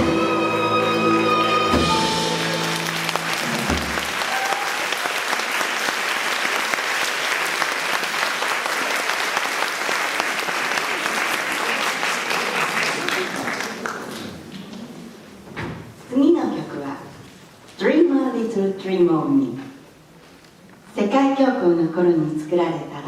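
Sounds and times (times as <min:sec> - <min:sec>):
audience applauding: 0:00.8 - 0:14.9.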